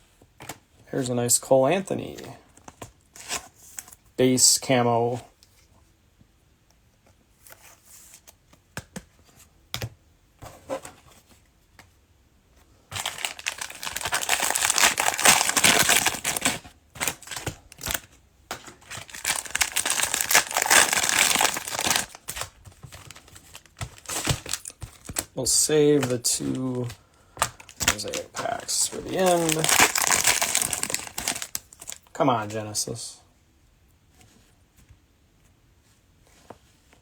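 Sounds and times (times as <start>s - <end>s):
cellophane wrapper crinkling: 13.0s - 32.1s.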